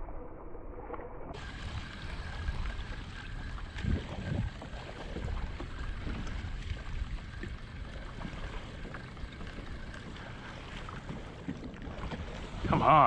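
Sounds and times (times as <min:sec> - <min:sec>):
wind rumble on microphone: 0:00.0 - 0:13.0
water sloshing around kayak: 0:01.3 - 0:13.0.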